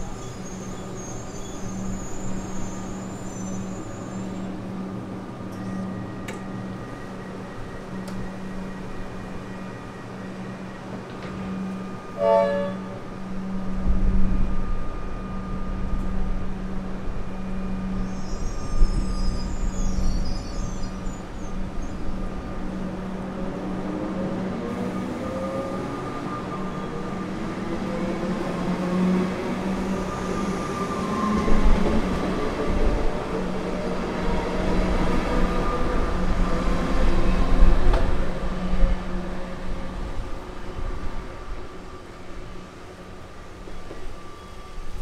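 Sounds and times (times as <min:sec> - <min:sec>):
electric train humming: 0:00.0 - 0:45.0
train pulling away rumble: 0:00.0 - 0:45.0
short train horn toot: 0:12.1 - 0:13.1.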